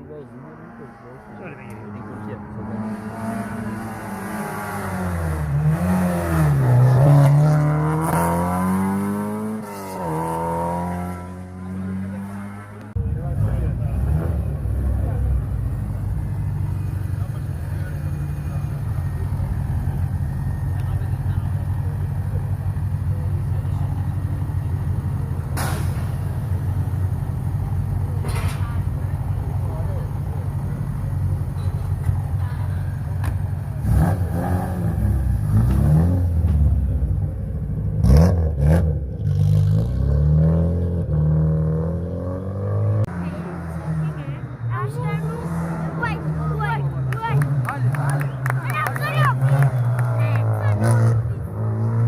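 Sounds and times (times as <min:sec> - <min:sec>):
rally car engine accelerating: 0:00.6 - 0:28.4, 0:29.0 - 0:52.0
car engine idling: 0:13.0 - 0:34.3.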